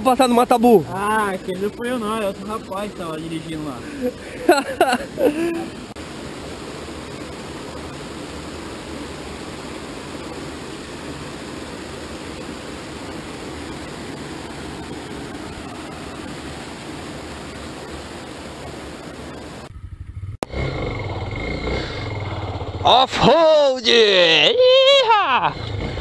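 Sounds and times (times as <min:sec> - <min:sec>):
flowing water rushing: 0:00.0 - 0:19.7.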